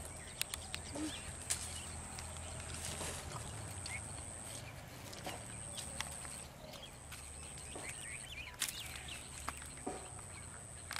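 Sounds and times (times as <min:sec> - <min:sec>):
birds chirping: 0:00.0 - 0:10.9
scattered clicks: 0:00.3 - 0:00.9.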